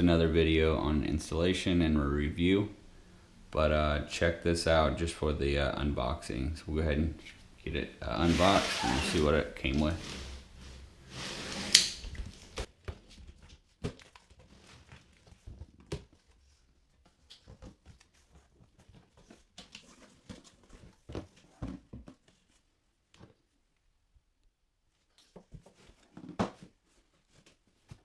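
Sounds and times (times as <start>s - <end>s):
cardboard tearing: 8.2s - 10.5s.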